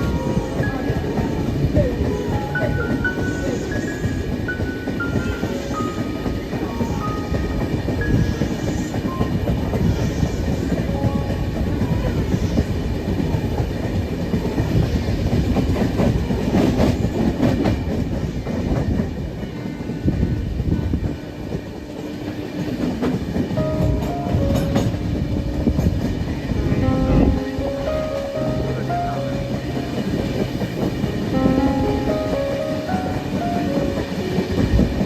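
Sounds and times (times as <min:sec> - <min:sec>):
train coach rumbling: 0:00.0 - 0:35.0
stepped musical notes: 0:26.6 - 0:35.0.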